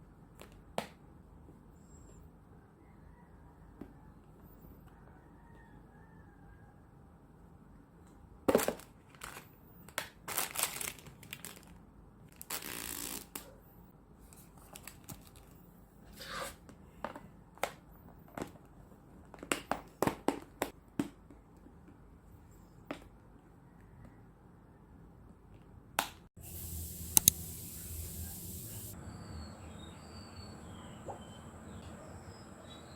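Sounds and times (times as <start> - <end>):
rasping hiss: 26.4 - 29.0.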